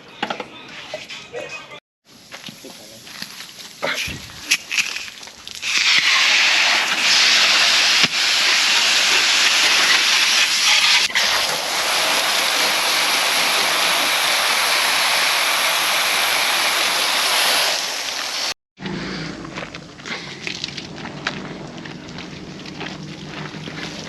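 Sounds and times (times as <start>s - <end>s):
loud rushing hiss: 5.6s - 18.6s.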